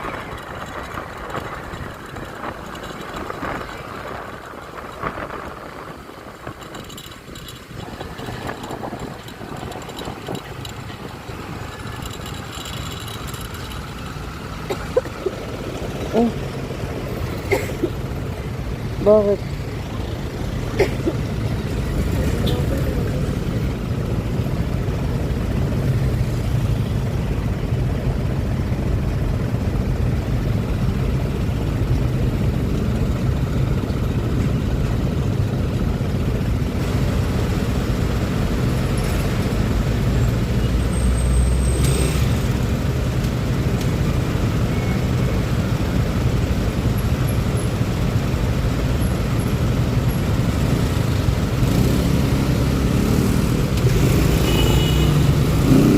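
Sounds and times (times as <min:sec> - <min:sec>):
wind rumble: 0:00.0 - 0:20.7
scooter engine: 0:00.0 - 0:55.9
surrounding traffic: 0:00.0 - 0:55.9.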